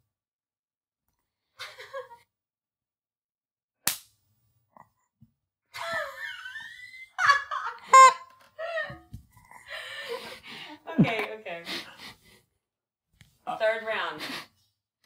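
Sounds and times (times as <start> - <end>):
rubber band snapping on skin: 3.8 - 4.1
rubber chicken squeaking: 7.9 - 8.3.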